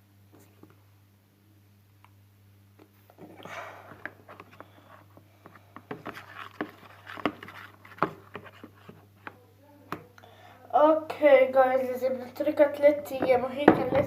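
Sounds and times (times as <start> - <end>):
plastic tub clicks and scraping: 5.5 - 10.0.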